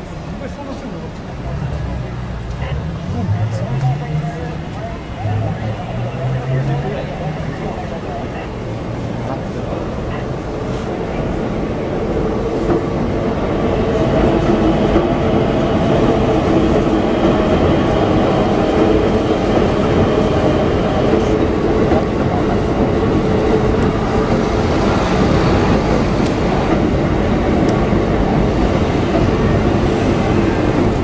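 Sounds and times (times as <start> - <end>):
electric train rolling past: 0.0 - 31.0.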